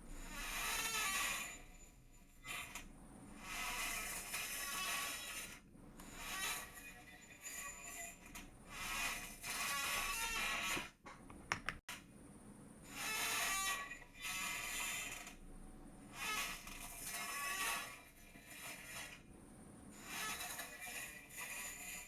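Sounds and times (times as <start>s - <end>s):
chair creaking: 8.3s - 11.8s.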